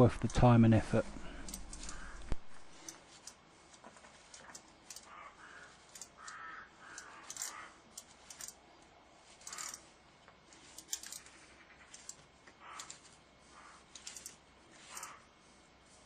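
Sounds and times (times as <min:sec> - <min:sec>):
small metal parts clicking: 0:01.2 - 0:08.6, 0:09.2 - 0:13.2, 0:13.8 - 0:15.2.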